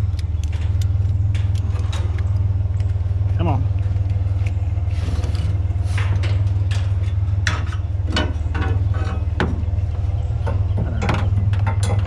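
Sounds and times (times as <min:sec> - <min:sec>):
truck engine idling: 0:00.0 - 0:12.0
metal knocks and scrapes: 0:04.8 - 0:12.0.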